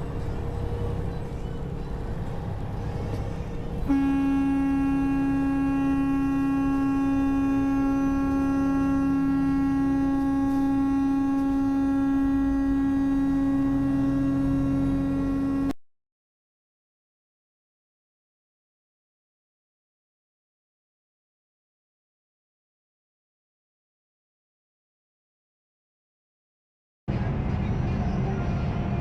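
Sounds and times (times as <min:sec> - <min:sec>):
vehicle and road rumble: 0:00.0 - 0:15.8, 0:27.1 - 0:29.0
vehicle horn held: 0:03.8 - 0:15.8.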